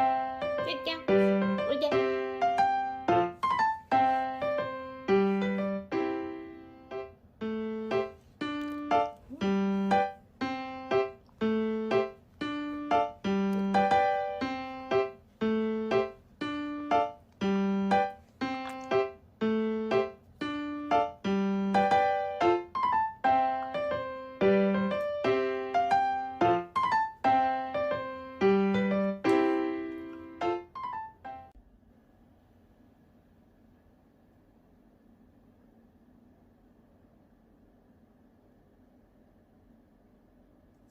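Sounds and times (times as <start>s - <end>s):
piano melody: 0.0s - 31.6s.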